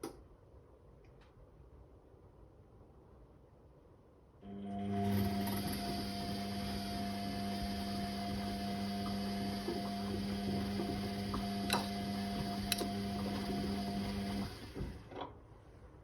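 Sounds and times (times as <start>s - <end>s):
washing machine motor hum: 4.4s - 15.3s.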